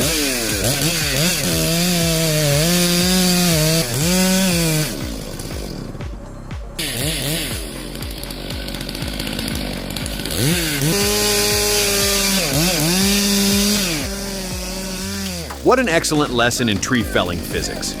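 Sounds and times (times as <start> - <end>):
background music with steady beat: 0.0 - 18.0
chainsaw cutting at high revs: 0.0 - 18.0.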